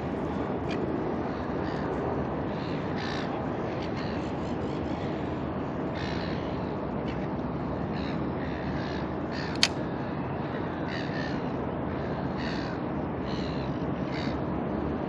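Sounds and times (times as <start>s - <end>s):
steady background hiss: 0.0s - 15.0s
sharp click: 9.5s - 9.8s.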